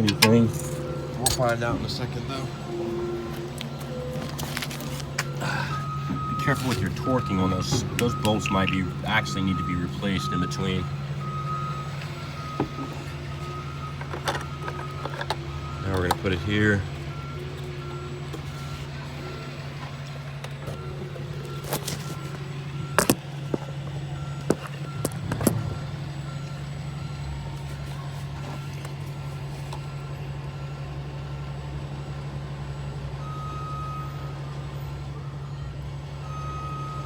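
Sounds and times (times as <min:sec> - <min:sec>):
low engine hum: 0:00.0 - 0:37.0
vehicle reversing alarm beeping: 0:00.0 - 0:37.0.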